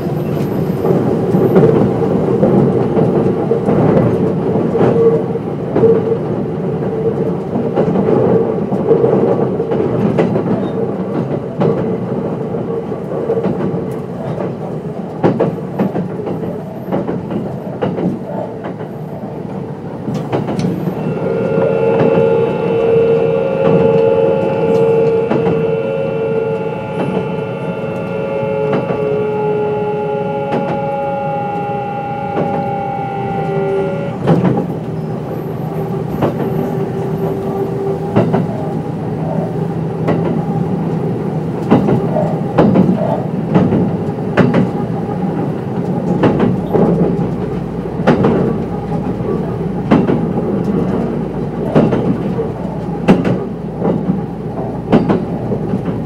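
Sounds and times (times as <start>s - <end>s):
wheels clicking over rail joints: 0.0s - 21.0s, 33.4s - 56.0s
train rumble: 0.0s - 56.0s.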